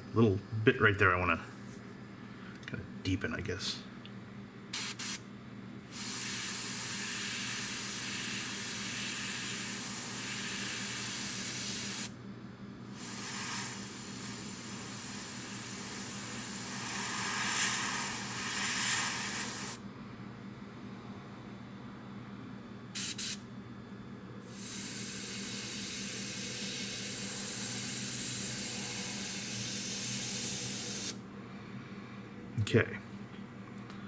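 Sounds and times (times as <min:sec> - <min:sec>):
airbrush air hiss: 0:04.8 - 0:05.2, 0:05.9 - 0:12.1, 0:12.9 - 0:19.8, 0:23.0 - 0:23.4, 0:24.5 - 0:31.2.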